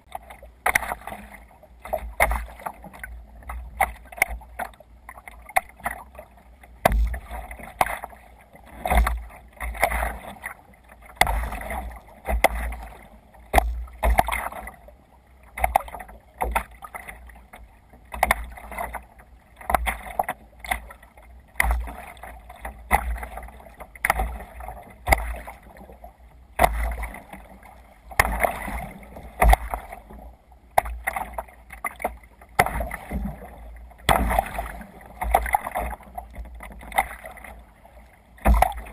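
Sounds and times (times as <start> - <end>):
water splashing against kayak hull: 0.0 - 38.9.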